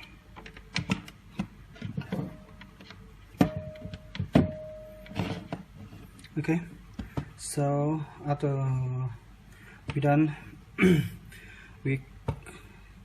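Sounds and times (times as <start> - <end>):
sharp clicks and knocks of connectors: 0.0 - 2.0.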